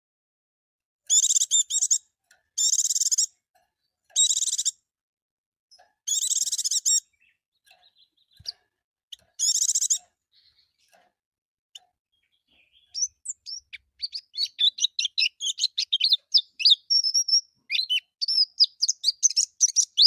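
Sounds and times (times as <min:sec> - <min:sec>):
bird twittering song: 0:01.0 - 0:04.8, 0:05.7 - 0:11.0, 0:11.7 - 0:20.0
faint bird chips: 0:11.8 - 0:20.0.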